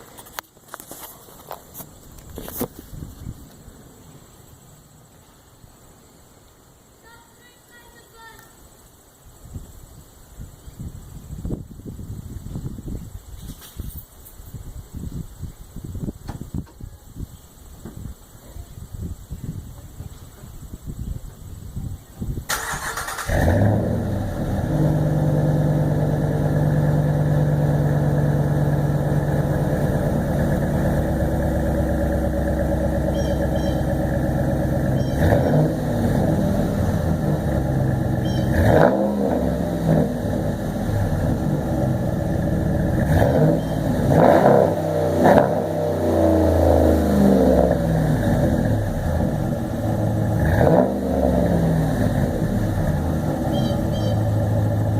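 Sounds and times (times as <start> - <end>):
truck engine starting: 22.4 - 54.9
engine revving: 22.5 - 54.9
loud engine idling: 25.0 - 38.6.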